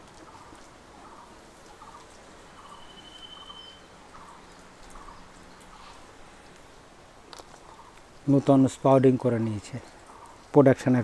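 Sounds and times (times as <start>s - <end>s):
short bird calls: 0.3s - 6.0s
high whistle: 2.7s - 3.9s.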